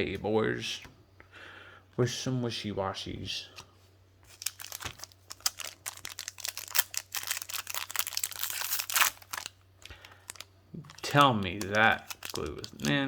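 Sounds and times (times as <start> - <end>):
foil wrapper crinkling: 4.3 - 13.0.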